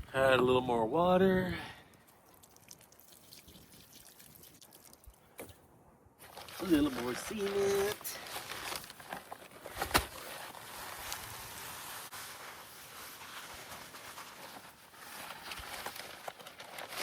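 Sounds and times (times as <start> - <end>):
dry cement pouring from bag: 6.2 - 17.0.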